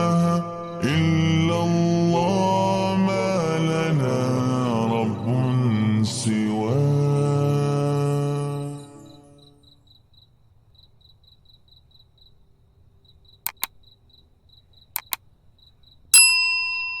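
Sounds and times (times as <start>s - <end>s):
crickets chirping: 0.0s - 17.0s
quick double clicks: 13.4s - 13.8s, 14.9s - 15.3s
chime ringing: 16.2s - 17.0s.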